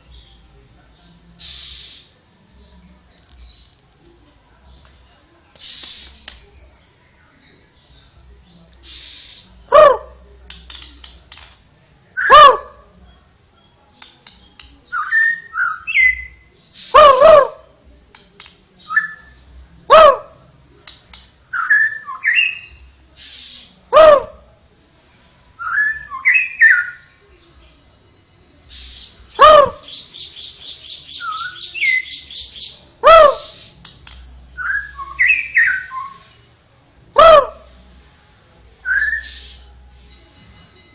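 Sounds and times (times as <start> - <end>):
songbird whistles and chirps: 1.4 - 2.2, 13.5 - 24.4, 25.1 - 40.9.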